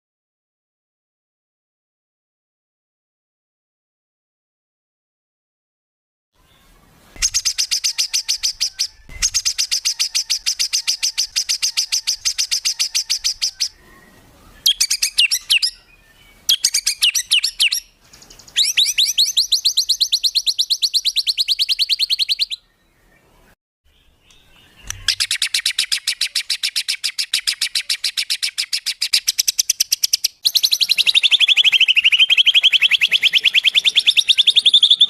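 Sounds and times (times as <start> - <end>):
songbird rapid sharp notes: 7.2 - 13.8, 24.2 - 35.0.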